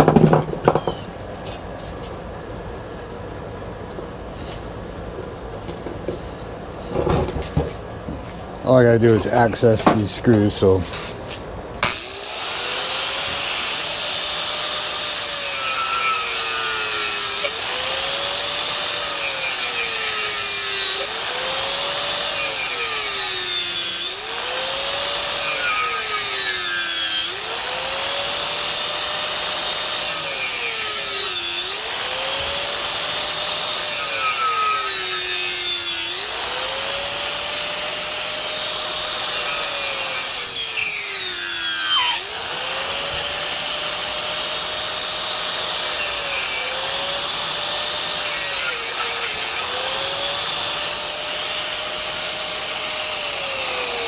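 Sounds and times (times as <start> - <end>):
electric power tool running: 11.8 - 54.0.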